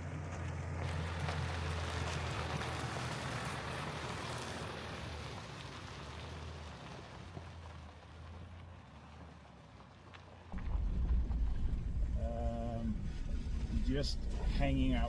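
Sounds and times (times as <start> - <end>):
road noise hiss: 0.0 - 15.0
low engine drone: 10.6 - 15.0.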